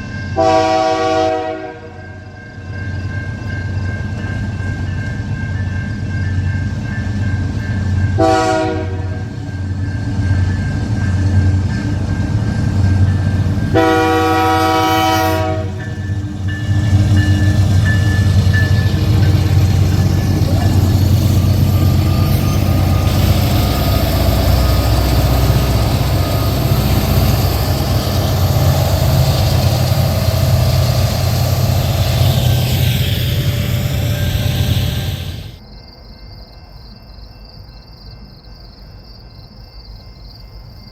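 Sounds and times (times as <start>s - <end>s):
train rumbling past: 0.0s - 40.9s
locomotive horn blast: 0.4s - 2.0s, 8.2s - 9.3s, 13.8s - 15.8s, 19.4s - 35.6s.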